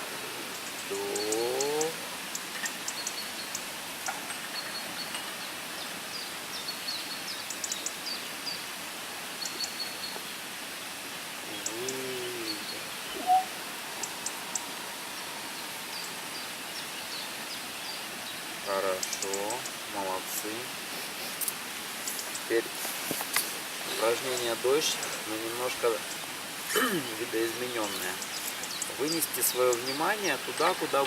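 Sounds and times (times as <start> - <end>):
background hiss: 0.0 - 31.0
small birds chirping: 0.0 - 31.0
low arched bird call: 11.5 - 18.0.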